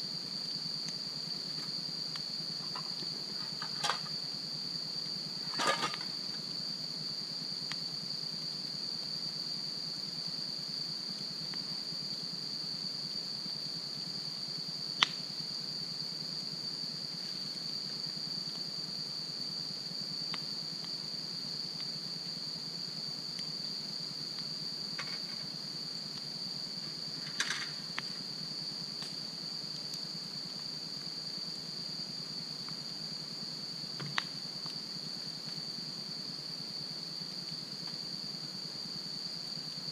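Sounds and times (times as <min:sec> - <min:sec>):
insects chirring: 0:00.0 - 0:39.9
campfire crackling and popping: 0:15.0 - 0:15.3, 0:28.9 - 0:30.1, 0:34.1 - 0:34.8.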